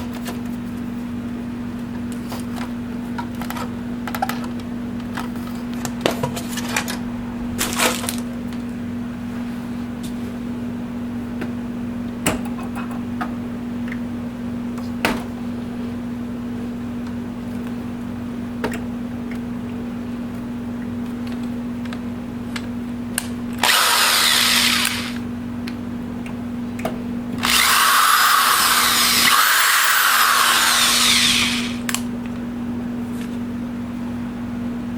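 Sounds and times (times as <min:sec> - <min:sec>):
steady low hum: 0:00.0 - 0:34.9
power drill running: 0:23.6 - 0:25.2, 0:27.4 - 0:31.9.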